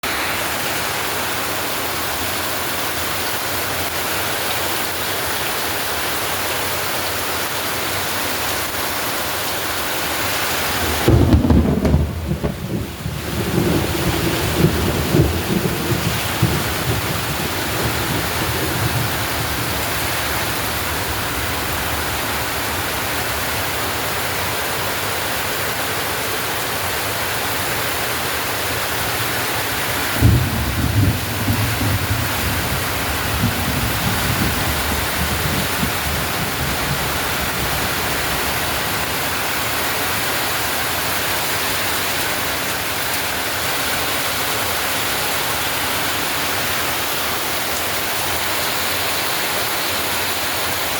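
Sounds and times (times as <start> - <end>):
steady rain: 0.0 - 50.9
low rumble of thunder: 10.6 - 23.8, 30.0 - 40.3.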